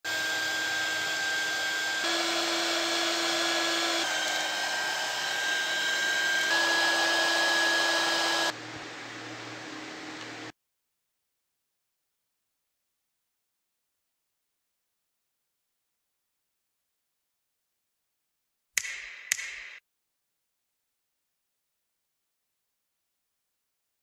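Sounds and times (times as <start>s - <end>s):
hot air gun running: 0.1s - 8.5s.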